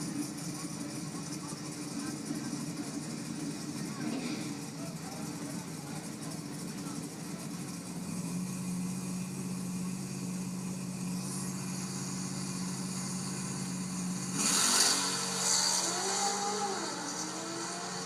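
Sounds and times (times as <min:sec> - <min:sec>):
car engines idling: 0:00.0 - 0:18.0
cars launching loud rush: 0:14.2 - 0:18.0.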